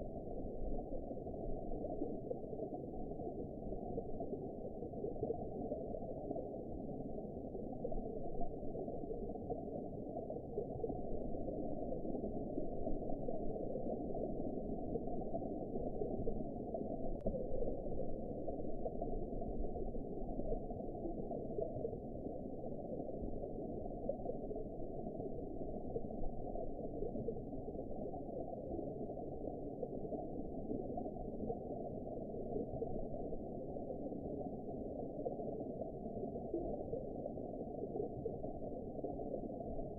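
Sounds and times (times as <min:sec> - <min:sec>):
muffled underwater rumble: 0:00.0 - 0:39.9.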